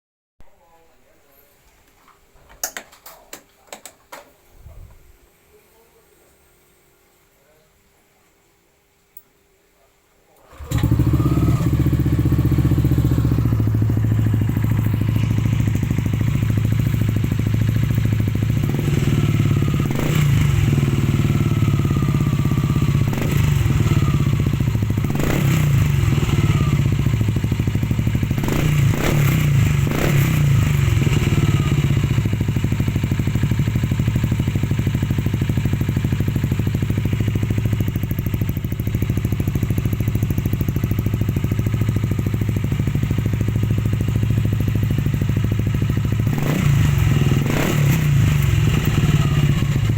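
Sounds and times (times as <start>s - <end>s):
scooter engine starting and idling: 10.4s - 49.9s
scooter engine revving: 10.5s - 49.9s.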